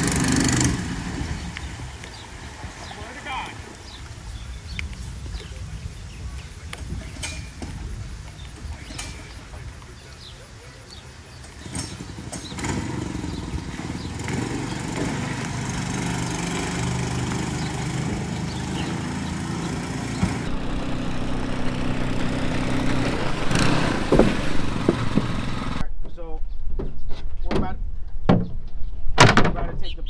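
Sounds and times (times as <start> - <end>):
outboard engine running: 0.0 - 3.9, 11.5 - 25.8
short engine knocks: 14.2 - 25.8.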